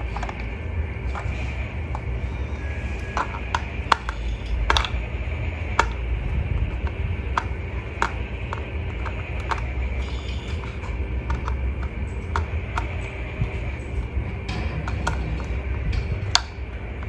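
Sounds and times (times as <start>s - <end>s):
steady low hum: 0.0s - 17.0s
light clicks and taps of handling: 6.7s - 13.1s.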